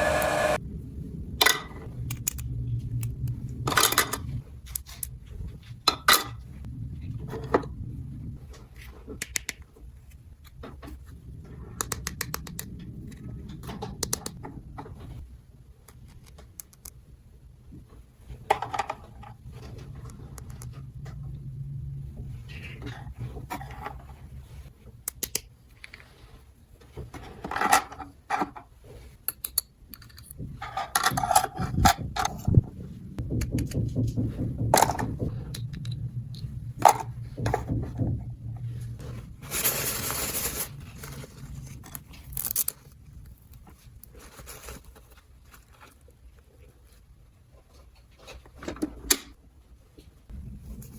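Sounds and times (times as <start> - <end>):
low hum: 0.0 - 4.6, 19.4 - 24.7, 32.2 - 44.1, 50.3 - 50.9
toy pieces clicking and scraping: 42.2 - 42.8.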